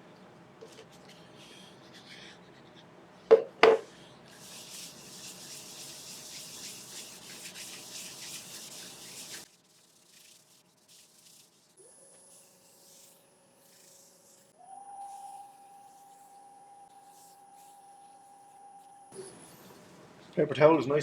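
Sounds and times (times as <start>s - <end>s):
sharp knocks: 3.3s - 3.9s
abrasive hissing against spinning bowl: 3.8s - 20.1s.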